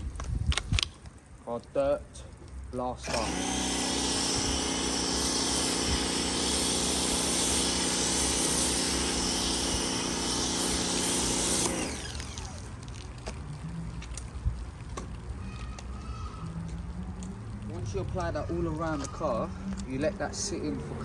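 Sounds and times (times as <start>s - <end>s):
pressure washer motor hum: 3.0s - 13.0s
loud spray hiss: 3.1s - 12.7s.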